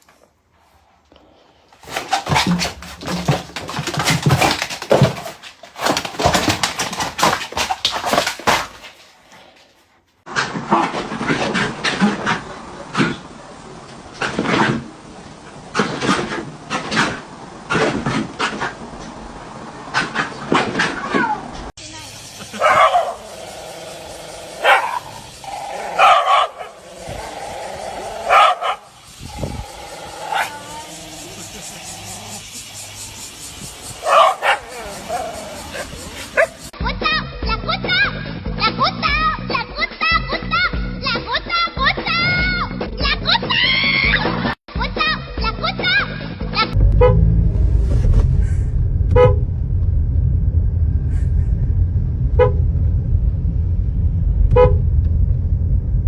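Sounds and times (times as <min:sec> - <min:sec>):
dog vocalizing: 0:22.4 - 0:32.6, 0:34.0 - 0:36.8.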